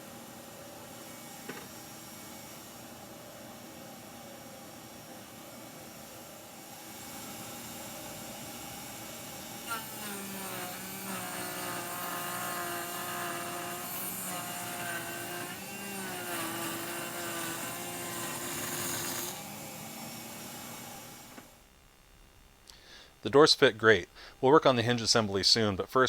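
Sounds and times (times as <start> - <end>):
router whining while cutting wood: 6.6 - 21.6.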